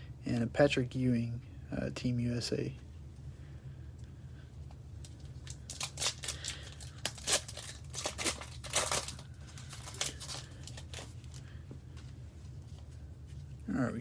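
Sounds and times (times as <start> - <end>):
card pack wrapper tearing and crinkling: 5.0 - 11.4.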